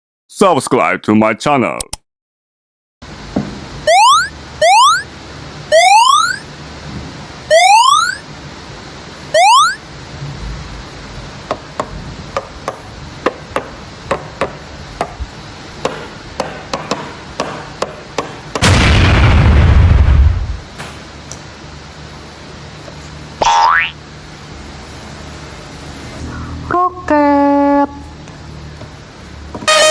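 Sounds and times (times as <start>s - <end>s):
rising boing sound effects: 23.4s - 24.0s.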